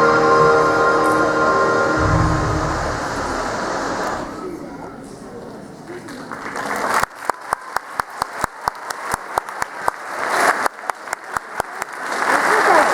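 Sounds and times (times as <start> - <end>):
audience applauding: 6.4 - 12.9.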